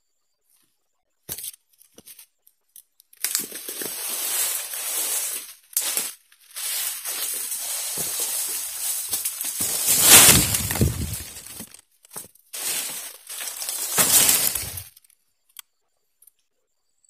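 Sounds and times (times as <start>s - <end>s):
footsteps on dead palm fronds: 3.2s - 14.9s
palm frond dragged through undergrowth: 3.2s - 14.9s.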